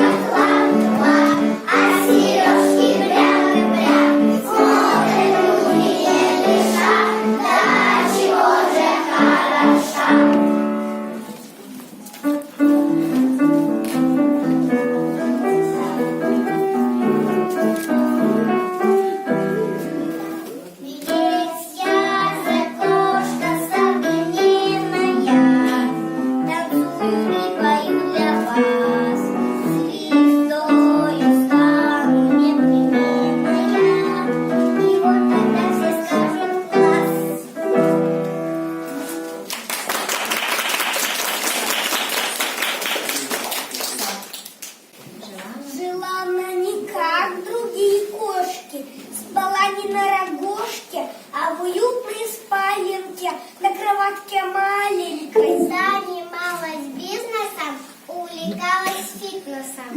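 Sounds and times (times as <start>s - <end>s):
children singing: 0.0s - 10.8s
piano accompaniment: 0.0s - 44.0s, 55.3s - 56.1s.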